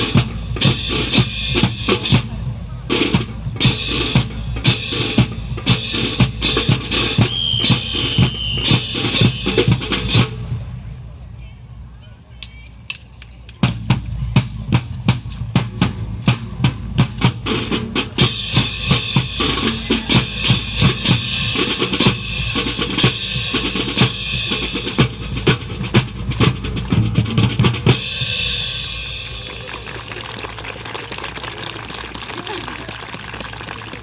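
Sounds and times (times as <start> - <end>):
bass and snare drum beat: 0.0 - 10.8, 12.4 - 30.8.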